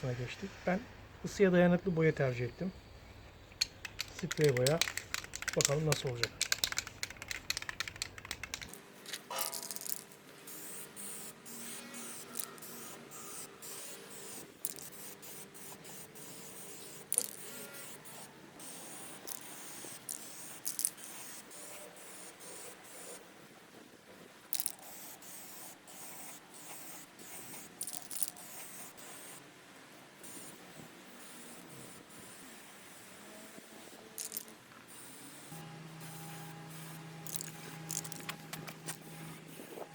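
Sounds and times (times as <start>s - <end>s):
light clicks and rattles: 3.4s - 8.8s
spray paint can hissing: 3.6s - 8.8s, 11.1s - 23.1s, 24.6s - 29.3s, 34.2s - 39.9s.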